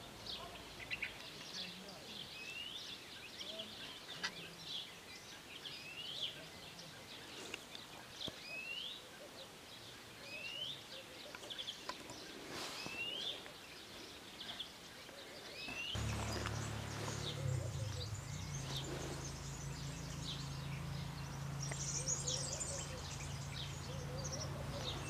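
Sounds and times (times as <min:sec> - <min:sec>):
faint outdoor background noise: 0:00.0 - 0:25.0
high bird chirps: 0:15.6 - 0:25.0.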